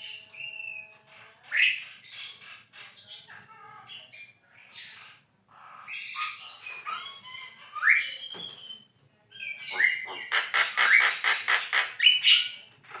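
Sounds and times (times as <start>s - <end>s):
bird chattering: 9.4s - 13.0s.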